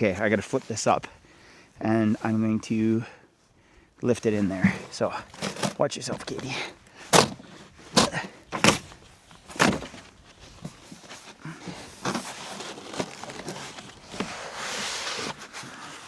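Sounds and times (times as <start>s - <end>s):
heavy battery knocking into rack: 7.1s - 7.4s.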